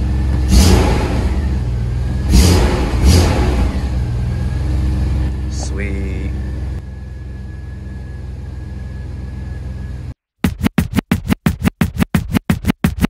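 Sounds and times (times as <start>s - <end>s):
engine idling: 0.0s - 10.2s
electronic music with scratching: 10.4s - 13.0s.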